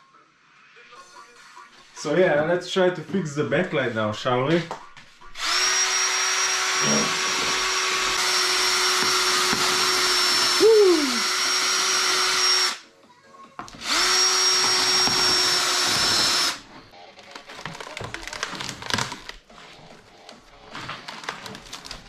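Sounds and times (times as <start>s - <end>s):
electric power tool running: 5.4s - 12.8s, 13.8s - 16.6s.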